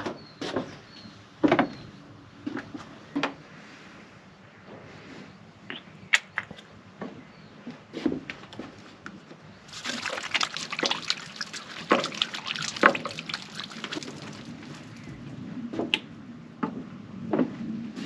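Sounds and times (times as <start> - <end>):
water splashing: 9.7 - 15.3.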